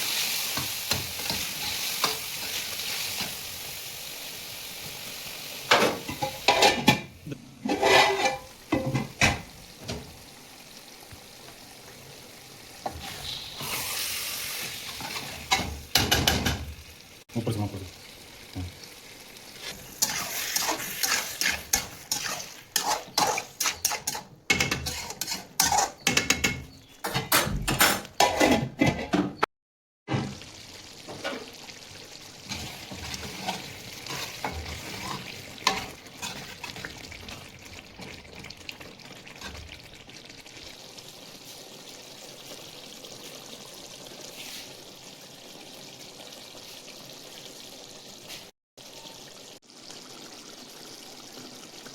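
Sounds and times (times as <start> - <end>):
spoon stirring and scraping pan: 0.0 - 3.4, 5.7 - 10.1, 14.6 - 16.7, 19.6 - 29.4, 32.4 - 40.3
chicken sizzling in a pan: 0.0 - 27.0, 30.2 - 51.9.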